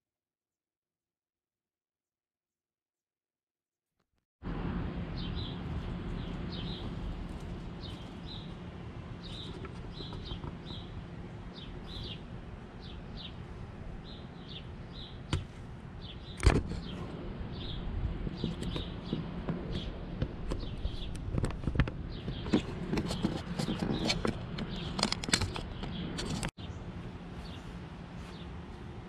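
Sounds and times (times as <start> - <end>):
bird chirping: 5.1 - 8.6, 9.2 - 21.2.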